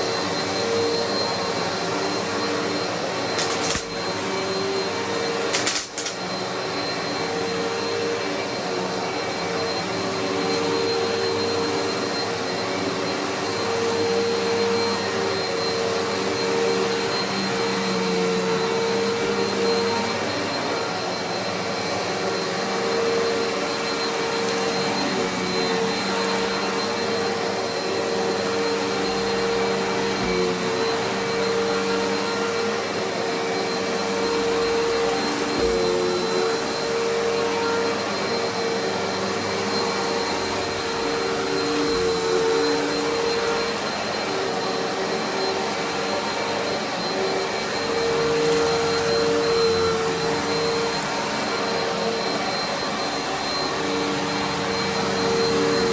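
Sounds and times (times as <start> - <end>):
upright vacuum cleaner on carpet: 0.0 - 55.9.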